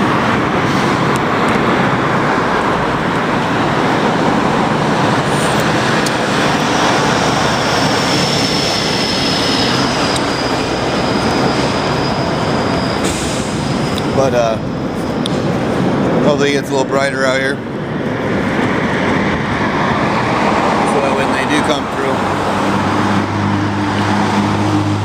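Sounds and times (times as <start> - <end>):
heavy vehicles rumbling past: 0.0 - 25.0
thin high squeal: 9.9 - 14.4.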